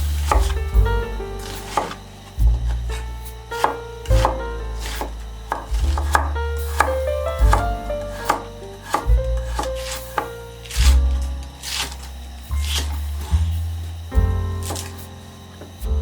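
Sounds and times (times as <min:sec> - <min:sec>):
background music: 0:00.0 - 0:13.5, 0:14.1 - 0:16.0
knife chopping on cutting board: 0:00.2 - 0:03.0, 0:03.6 - 0:12.0, 0:12.6 - 0:13.4, 0:14.6 - 0:15.0.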